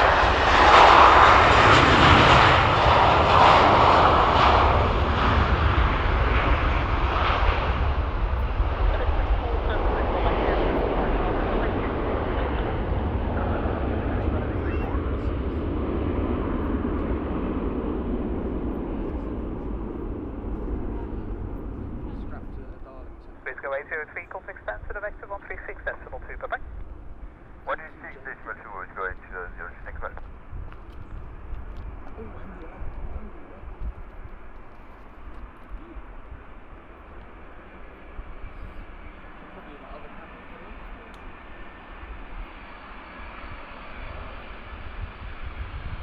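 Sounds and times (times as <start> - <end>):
jet engines roaring: 0.0 - 46.0.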